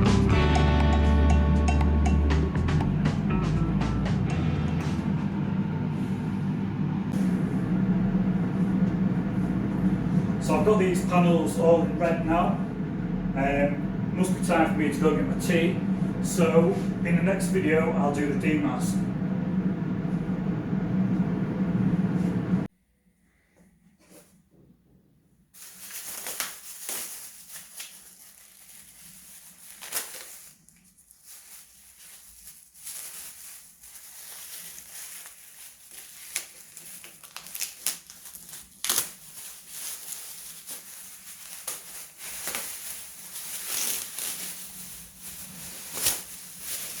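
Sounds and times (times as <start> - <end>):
crinkling and crunching with clicks: 25.6 - 47.0.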